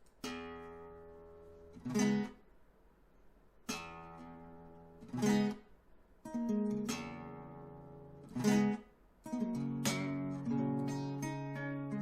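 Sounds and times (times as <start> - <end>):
acoustic guitar strummed chords: 3.7 - 12.0.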